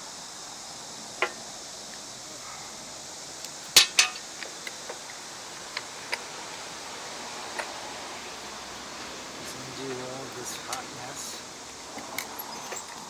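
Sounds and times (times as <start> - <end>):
steady hiss: 0.0 - 13.0
metal tools clinking: 3.8 - 4.3.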